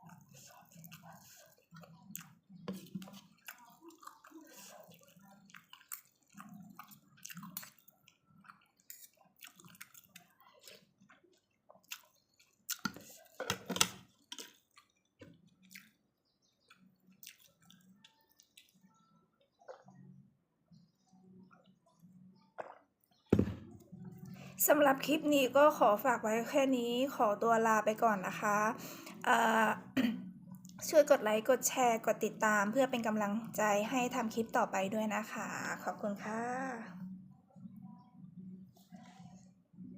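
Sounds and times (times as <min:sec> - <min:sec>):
slurping: 0:00.0 - 0:14.9
small wet clicks: 0:00.0 - 0:20.0
chewing noodle soup: 0:00.0 - 0:23.2, 0:30.5 - 0:36.0.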